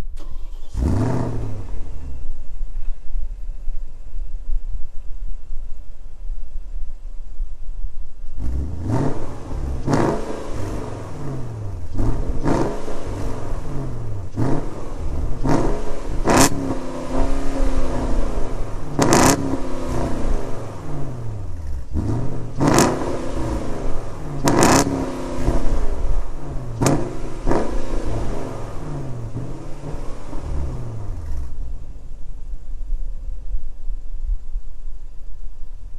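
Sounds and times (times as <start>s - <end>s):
car engine revving: 0.0s - 2.8s, 8.2s - 32.2s
exhaust cracks: 0.0s - 3.8s, 8.2s - 32.5s.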